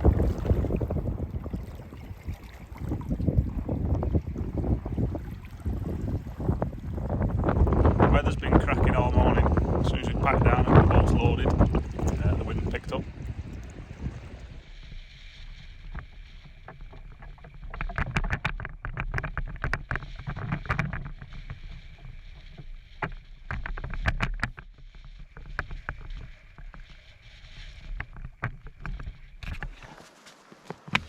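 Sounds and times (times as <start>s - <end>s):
wind on microphone: 0.0s - 30.0s
water splashing: 0.0s - 31.0s.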